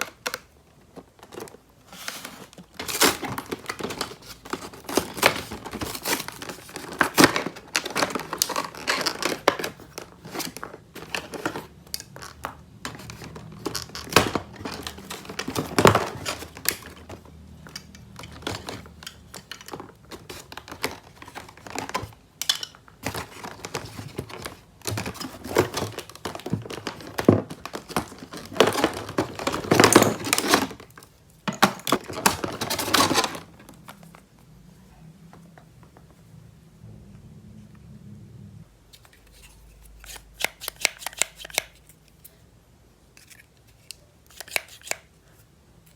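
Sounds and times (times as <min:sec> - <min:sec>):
packaging crinkling and tearing: 0:01.1 - 0:12.4, 0:23.0 - 0:31.0.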